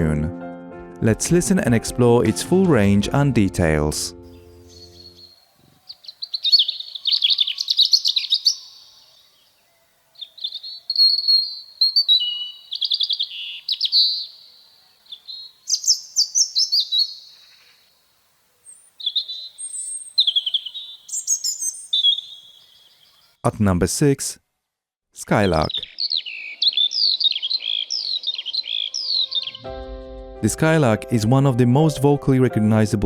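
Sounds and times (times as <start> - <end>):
robin singing warbled phrases: 1.4 - 9.5, 10.2 - 17.8, 18.6 - 23.4, 25.2 - 29.7.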